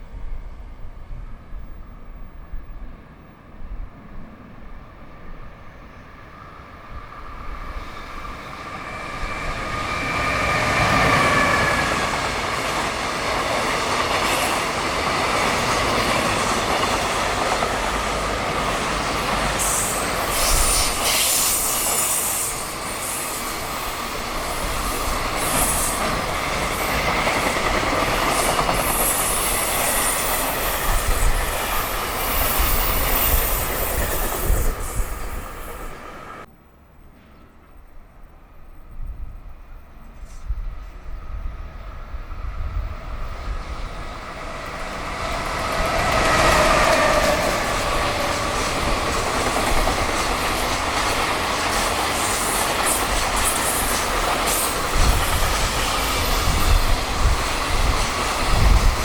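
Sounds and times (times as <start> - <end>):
locomotive whine: 43.5 - 59.0
wheels clattering on rails: 45.1 - 59.0.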